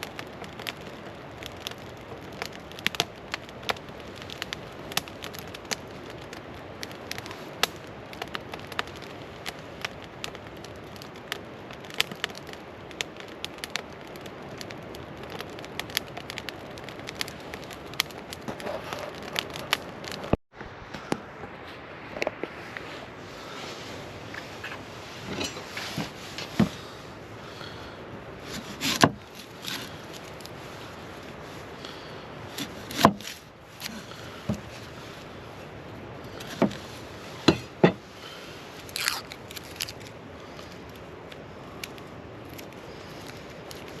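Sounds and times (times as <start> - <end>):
campfire pops and snaps: 0.0 - 21.5, 25.4 - 30.6, 31.2 - 35.0, 35.6 - 44.0
hiss of flames: 0.0 - 44.0.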